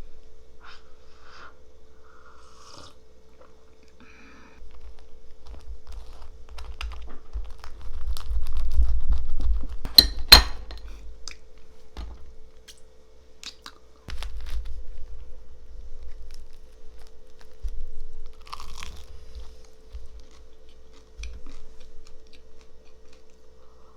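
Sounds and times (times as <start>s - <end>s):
glass and dishes clinking: 9.9s - 10.9s.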